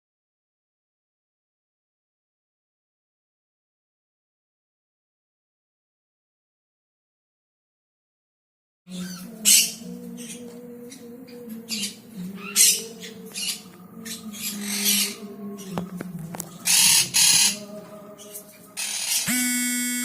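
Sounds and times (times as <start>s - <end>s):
baby birds rasping begging calls: 8.9s - 11.0s, 11.7s - 17.7s, 18.8s - 20.0s
music: 8.9s - 20.0s.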